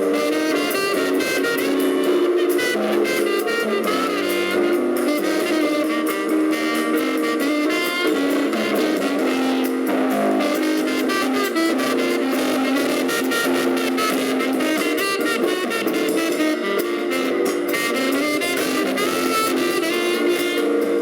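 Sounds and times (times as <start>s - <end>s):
drums: 0.0s - 21.0s
horns playing tune: 0.0s - 21.0s
jazz band playing: 0.0s - 21.0s.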